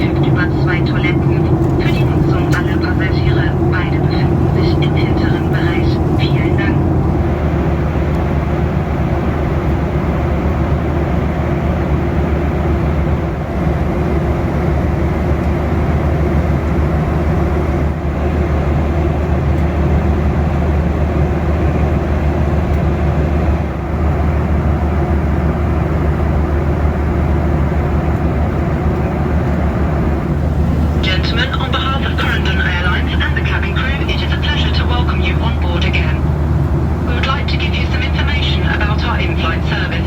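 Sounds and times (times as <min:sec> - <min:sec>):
airplane cabin engine noise: 0:00.0 - 0:40.0.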